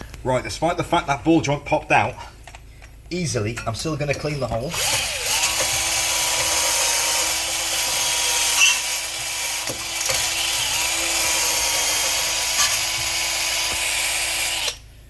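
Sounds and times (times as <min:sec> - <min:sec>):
power drill whining: 0:04.2 - 0:14.9.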